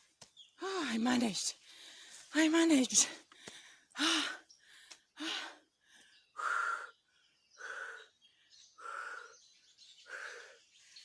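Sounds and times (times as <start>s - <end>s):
person breathing hard: 3.3s - 10.8s.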